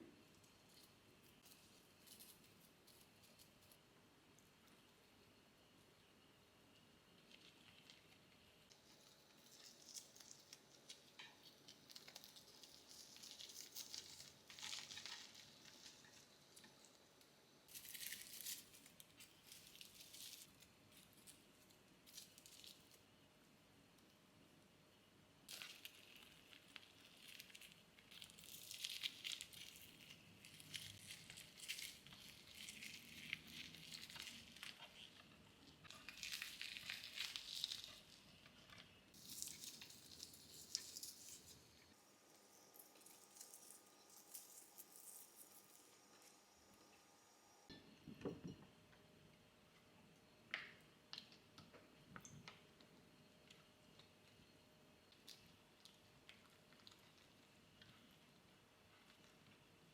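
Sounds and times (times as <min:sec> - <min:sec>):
hands rustling food packaging: 0:07.2 - 0:23.0, 0:25.5 - 0:46.2.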